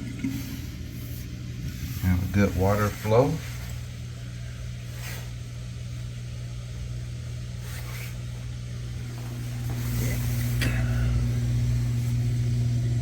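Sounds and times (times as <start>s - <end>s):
dishwasher pump humming: 0.0s - 13.0s
faint water flow: 0.0s - 13.0s.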